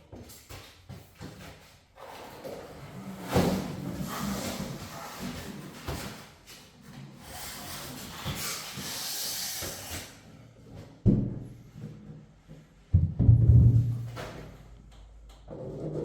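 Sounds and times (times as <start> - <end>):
heavy thump: 13.0 - 14.5.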